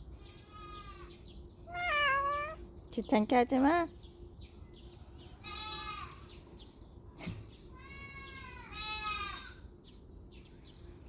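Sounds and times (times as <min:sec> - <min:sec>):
cat meowing: 0:01.7 - 0:02.6.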